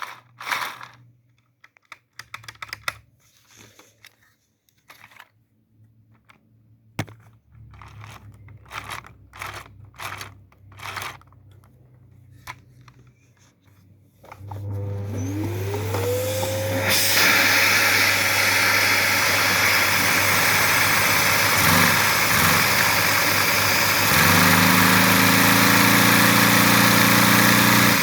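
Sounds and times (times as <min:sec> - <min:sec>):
plastic parts clicking and rattling: 0:00.0 - 0:14.6.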